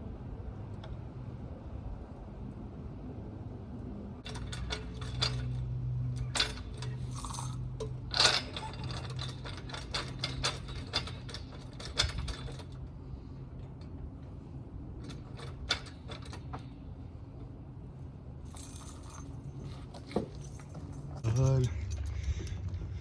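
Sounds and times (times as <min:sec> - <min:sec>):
metal tools clinking and clattering: 0:06.2 - 0:12.6, 0:18.5 - 0:23.0.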